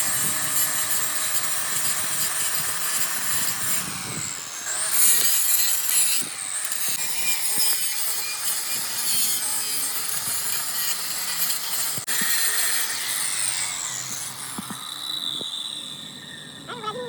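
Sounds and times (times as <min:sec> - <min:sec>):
power tool hissing on metal: 0:00.0 - 0:16.6.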